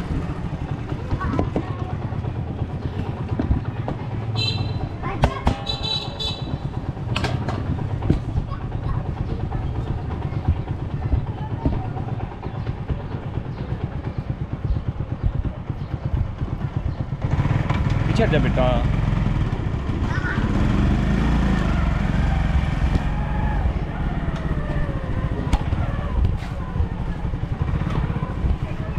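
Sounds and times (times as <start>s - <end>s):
vehicle engine running: 0.0s - 28.9s.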